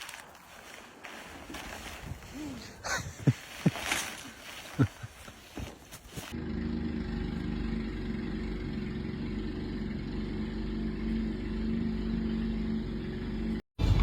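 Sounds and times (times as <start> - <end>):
vehicle engine humming: 4.0 - 14.0.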